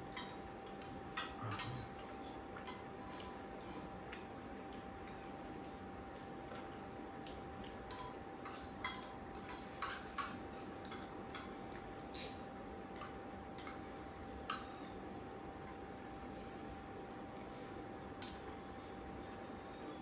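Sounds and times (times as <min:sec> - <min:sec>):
faint steady hum: 0:00.0 - 0:20.0
utensils clinking on plates: 0:01.1 - 0:02.8, 0:07.9 - 0:15.0.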